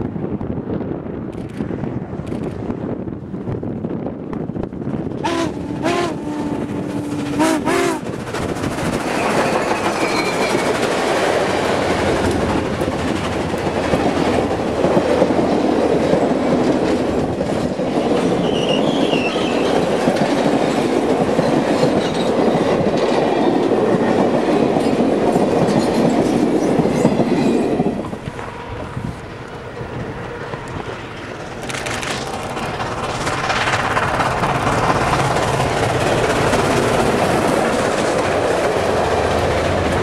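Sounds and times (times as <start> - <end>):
train wheels clattering on rails: 4.3 - 40.0
faint high wheel squeals: 9.2 - 10.8.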